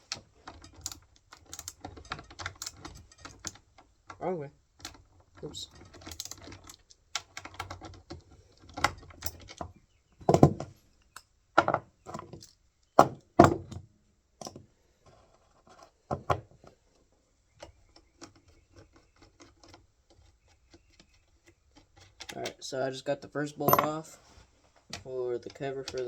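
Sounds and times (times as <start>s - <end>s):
tools knocking on metal: 23.7s - 24.0s.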